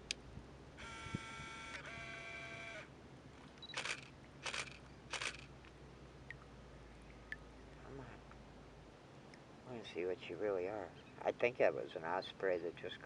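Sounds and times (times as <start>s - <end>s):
camera motor whirring: 0.8s - 2.9s, 3.6s - 5.5s
camera shutter firing: 3.6s - 5.5s.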